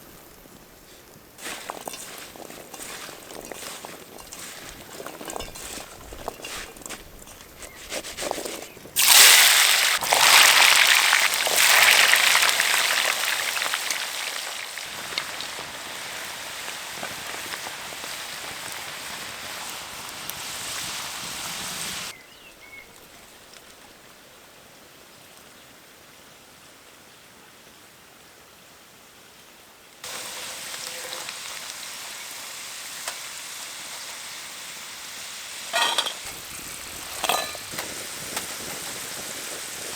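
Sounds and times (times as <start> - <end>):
food sizzling in hot oil: 0.0 - 8.0, 8.9 - 22.1, 30.0 - 39.9.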